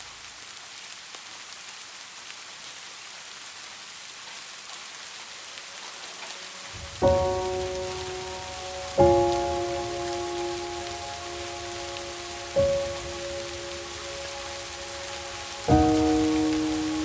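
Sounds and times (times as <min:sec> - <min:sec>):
rain falling: 0:00.0 - 0:17.0
piano chord ringing: 0:06.7 - 0:17.0.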